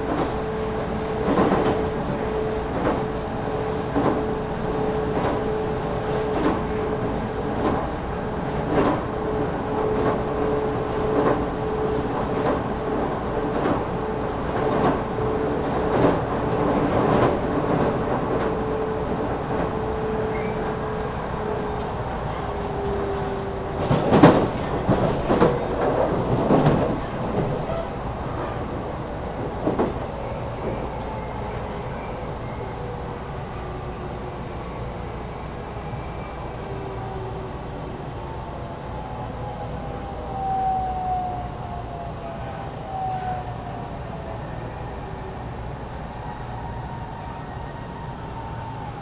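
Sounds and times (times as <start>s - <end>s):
train rumble and hum: 0.0s - 49.0s.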